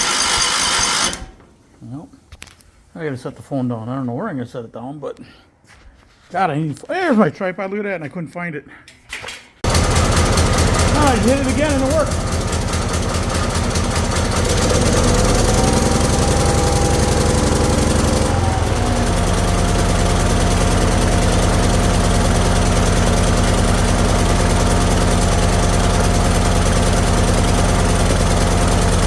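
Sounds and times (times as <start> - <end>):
small tractor engine running: 0.0 - 1.4, 9.6 - 29.0.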